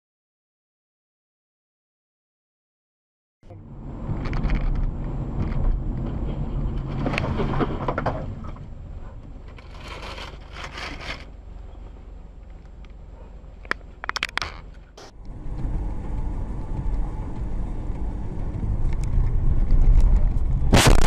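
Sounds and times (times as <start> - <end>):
car engine and tyres rumbling: 3.4 - 21.0
scraping noises: 4.0 - 11.3, 14.0 - 21.0.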